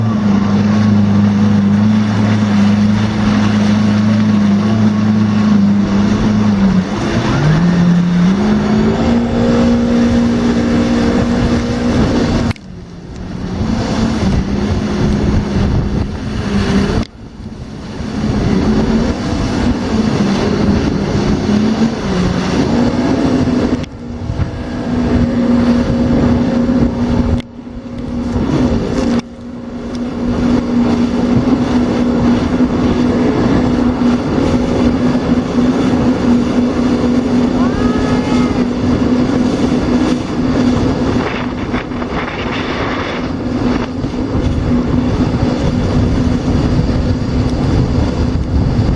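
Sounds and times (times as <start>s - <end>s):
rushing water: 0.0s - 48.9s
rushing wind: 0.0s - 48.9s
watercraft engine running: 0.0s - 48.9s.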